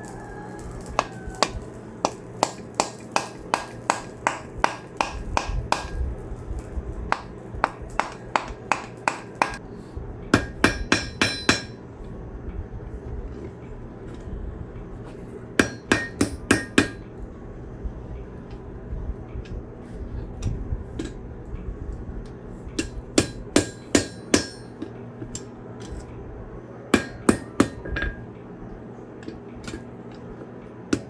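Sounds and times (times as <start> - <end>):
hammer striking steel on anvil: 0.0 - 9.6, 10.3 - 11.8, 15.6 - 17.1, 22.8 - 26.0, 26.9 - 28.2.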